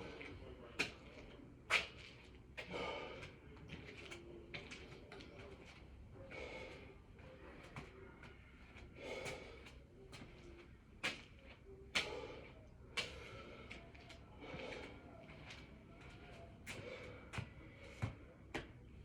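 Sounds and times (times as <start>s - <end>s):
man breathing hard: 2.6s - 3.4s, 6.3s - 7.0s, 12.0s - 15.4s, 16.1s - 18.2s.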